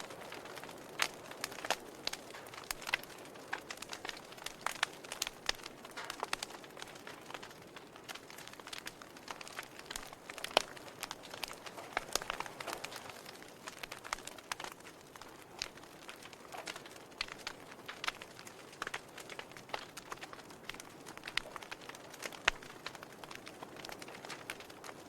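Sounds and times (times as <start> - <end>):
fire crackling in a fireplace: 0.0 - 25.0.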